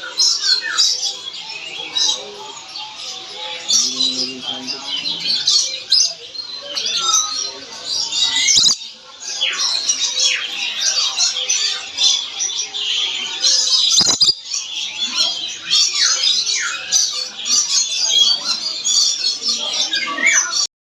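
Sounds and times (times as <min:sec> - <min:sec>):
parrot squawking and chattering: 0:05.2 - 0:20.7.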